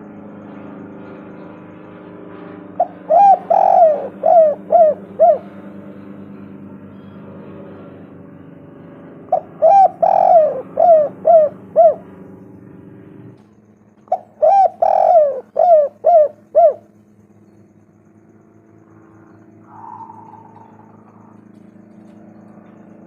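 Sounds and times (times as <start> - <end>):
steady low hum: 0.0 - 23.0
dove cooing: 2.8 - 6.2, 9.3 - 12.2, 14.0 - 17.0, 19.2 - 23.0.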